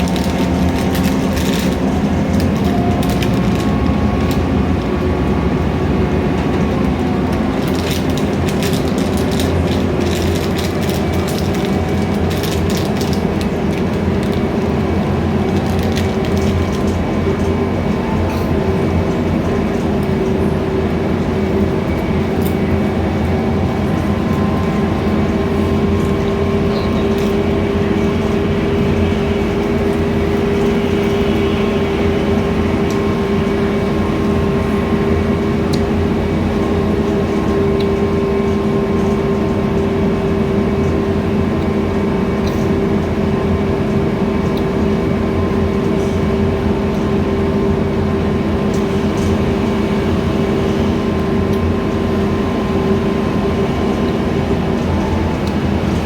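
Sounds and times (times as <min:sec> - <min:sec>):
bus engine hum: 0:00.0 - 0:56.0.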